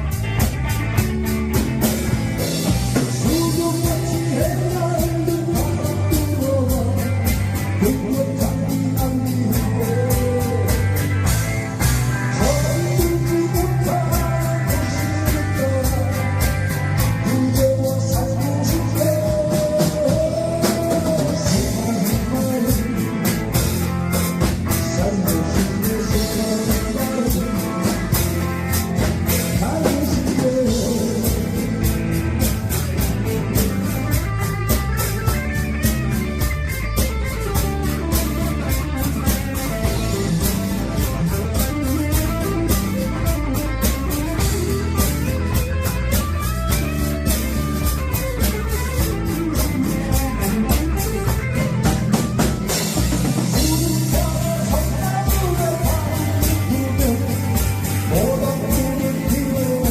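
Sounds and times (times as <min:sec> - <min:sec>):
drum kit beat: 0:00.0 - 0:59.9
person singing: 0:02.4 - 0:11.5, 0:12.2 - 0:34.8, 0:52.8 - 0:59.9.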